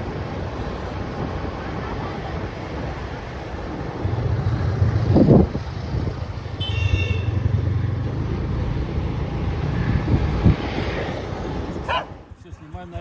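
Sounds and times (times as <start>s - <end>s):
vehicle engine humming: 3.3s - 13.0s.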